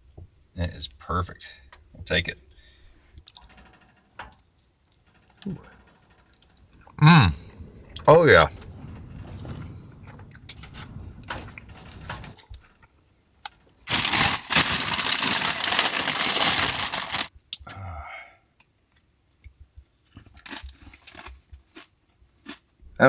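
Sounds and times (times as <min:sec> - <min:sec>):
loud rushing noise: 0:06.8 - 0:12.4.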